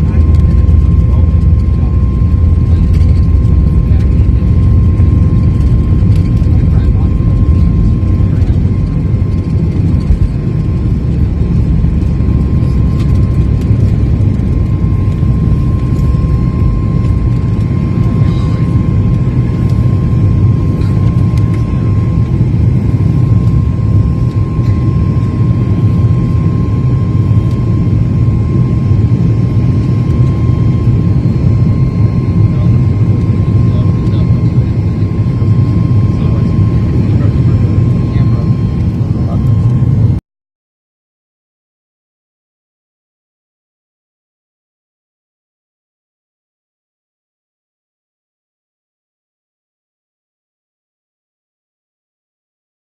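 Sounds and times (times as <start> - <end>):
faint steady whine: 0.0 - 40.2
low rumble of engines and airflow: 0.0 - 40.2.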